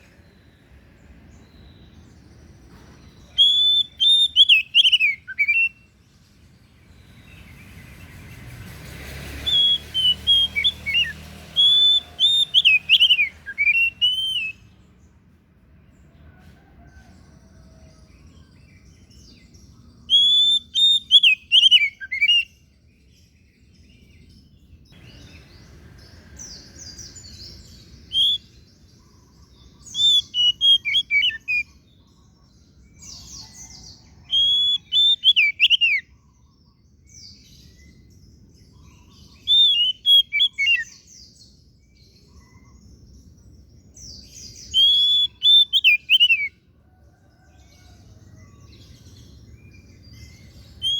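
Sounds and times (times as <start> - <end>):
magpie-robin whistled song: 1.0 - 6.0, 9.3 - 14.9, 18.6 - 25.8, 26.4 - 46.6, 48.4 - 50.9.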